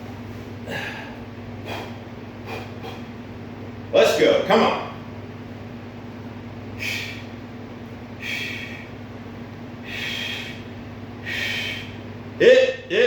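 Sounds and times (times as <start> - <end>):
man breathing forcefully: 0.6 - 3.2, 6.8 - 7.4, 8.2 - 9.0, 9.8 - 12.1.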